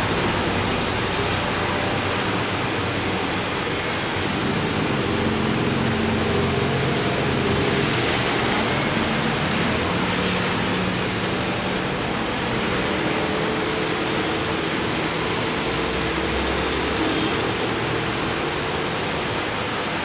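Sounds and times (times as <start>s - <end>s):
rain and traffic on wet road: 0.0s - 20.0s.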